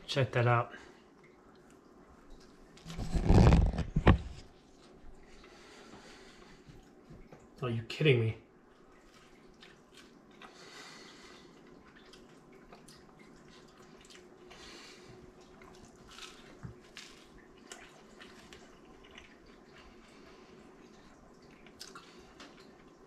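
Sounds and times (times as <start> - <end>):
chewing crisp pizza crust: 8.7 - 23.0.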